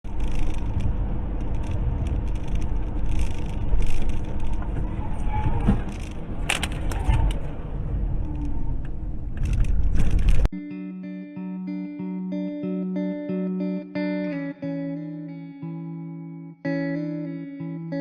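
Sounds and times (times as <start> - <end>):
car engine and tyres rumbling: 0.0 - 10.5.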